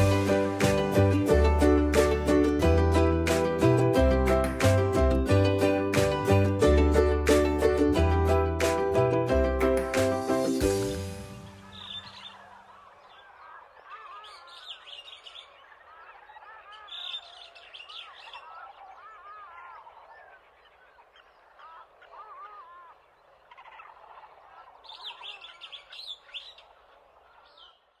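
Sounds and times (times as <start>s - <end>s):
birds chirping and calling: 10.7s - 27.9s.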